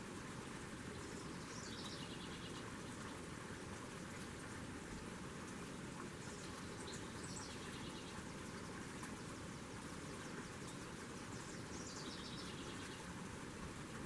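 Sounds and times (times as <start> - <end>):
outdoor background noise: 0.0 - 14.0
small birds chirping: 1.1 - 2.6, 10.1 - 13.1.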